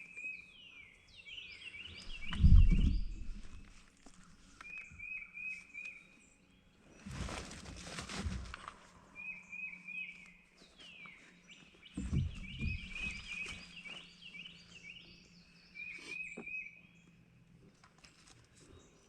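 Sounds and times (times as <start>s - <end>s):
bird chirping: 0.0s - 7.5s, 9.0s - 19.0s
low rustling handling noise: 2.0s - 5.0s, 7.0s - 9.0s, 10.6s - 14.7s.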